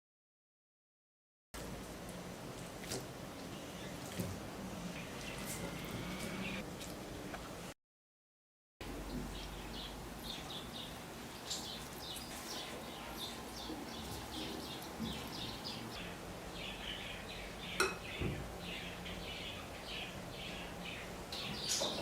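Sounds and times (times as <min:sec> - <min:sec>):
small birds chirping: 0:09.1 - 0:22.0.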